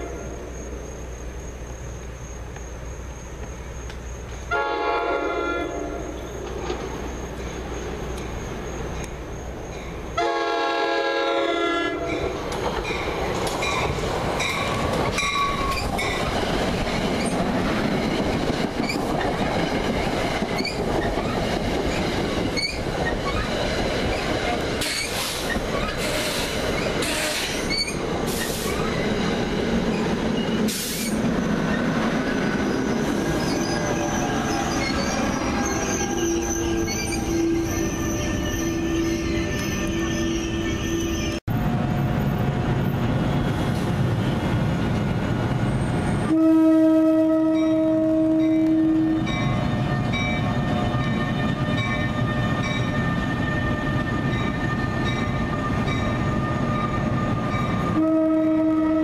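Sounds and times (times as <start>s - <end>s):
train horn blast: 4.5s - 6.2s, 10.2s - 12.2s, 46.3s - 49.5s, 55.5s - 59.0s
train wheels clicking over rail joints: 6.2s - 10.1s, 12.0s - 35.8s
wheels squealing: 12.1s - 41.4s.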